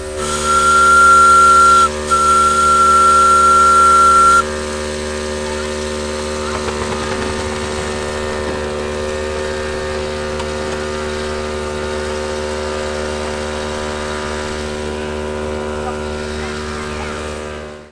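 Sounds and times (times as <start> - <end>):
steam whistle: 0.0 - 4.6
steady mechanical hum: 0.0 - 17.9.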